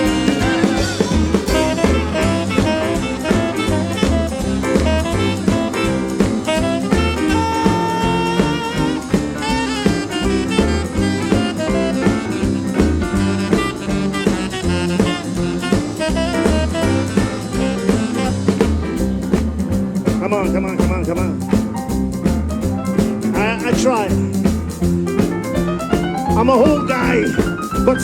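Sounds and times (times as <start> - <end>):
wavering lead line: 0.0 - 20.6
drums: 0.0 - 28.0
live jazz band playing: 0.0 - 28.0
walking bass line: 0.0 - 28.0.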